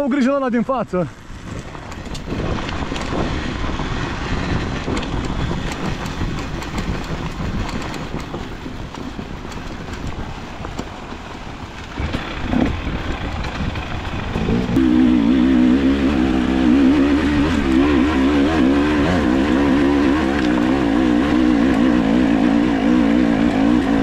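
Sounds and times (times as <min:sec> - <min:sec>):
motorcycle engine running rough: 0:01.1 - 0:24.0
engine clicks and knocks: 0:04.8 - 0:14.7.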